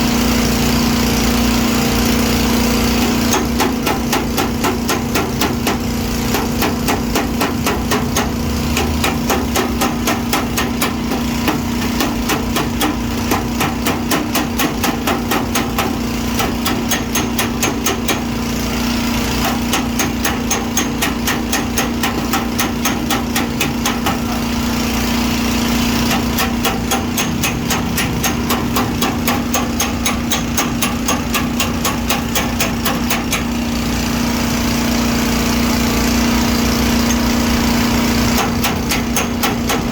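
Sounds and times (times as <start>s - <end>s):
steady machine hum: 0.0s - 39.9s
hammer taps on sheet metal: 19.4s - 24.4s, 26.1s - 33.6s, 38.4s - 39.9s.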